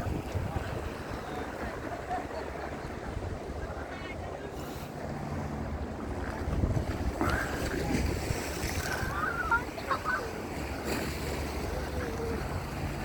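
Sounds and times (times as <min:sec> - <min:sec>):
wind on microphone: 0:00.0 - 0:04.4, 0:05.2 - 0:09.6
sea wash: 0:00.0 - 0:13.0.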